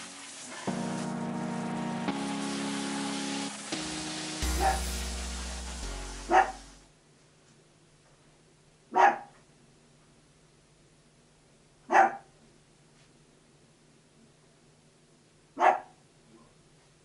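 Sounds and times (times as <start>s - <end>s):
background music: 0.0s - 6.9s
dog barking: 4.6s - 4.8s, 6.3s - 6.6s, 8.9s - 9.4s, 11.9s - 12.3s, 15.6s - 16.0s.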